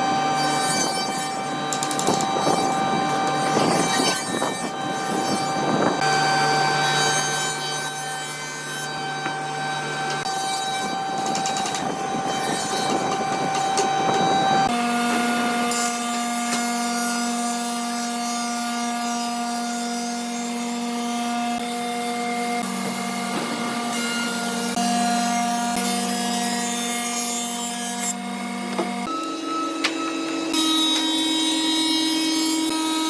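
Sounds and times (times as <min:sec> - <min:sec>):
wood scraping or sawing: 0:00.0 - 0:16.7.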